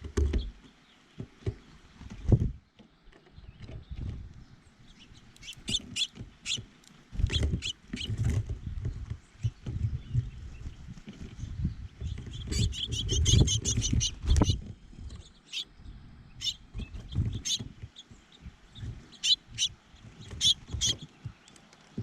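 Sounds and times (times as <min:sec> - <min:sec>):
small songbirds chirping: 0:00.0 - 0:22.0.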